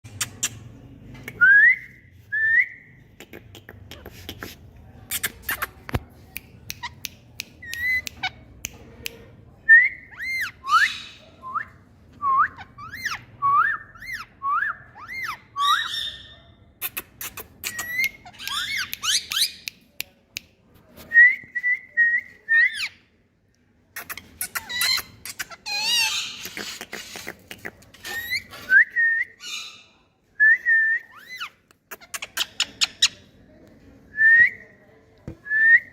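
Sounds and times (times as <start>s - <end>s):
parrot squawks: 24.1s - 27.3s.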